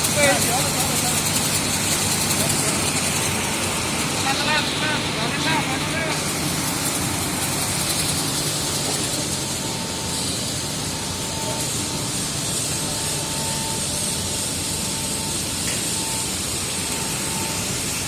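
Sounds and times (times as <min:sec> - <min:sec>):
fans and motors rushing: 0:00.0 - 0:18.0
faint high whine: 0:08.4 - 0:18.0.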